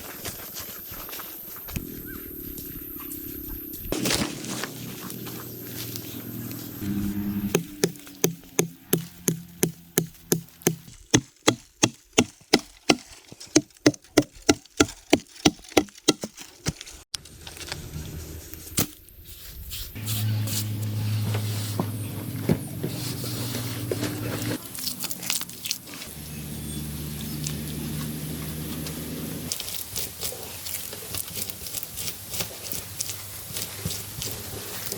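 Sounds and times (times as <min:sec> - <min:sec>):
steady low hum: 0:01.7 - 0:10.9
tool striking wood: 0:07.1 - 0:16.8.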